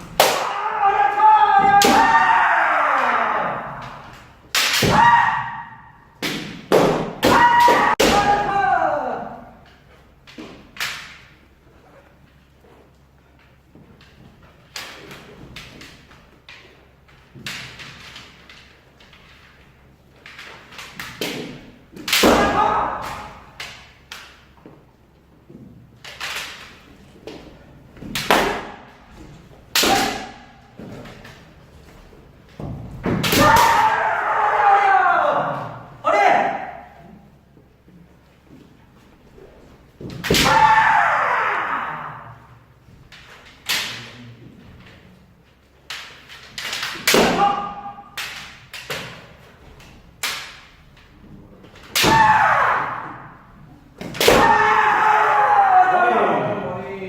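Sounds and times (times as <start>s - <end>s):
person shouting: 0.4s - 3.9s, 7.3s - 9.5s, 33.4s - 37.0s
bamboo sword strikes: 4.5s - 5.6s, 6.2s - 8.5s, 21.0s - 24.2s, 28.1s - 28.9s, 29.7s - 31.0s, 33.0s - 33.9s, 40.1s - 40.8s, 45.9s - 49.2s, 51.9s - 52.5s, 54.0s - 54.8s
bamboo sword strikes clacking: 28.1s - 28.9s, 29.7s - 30.5s, 45.9s - 49.2s.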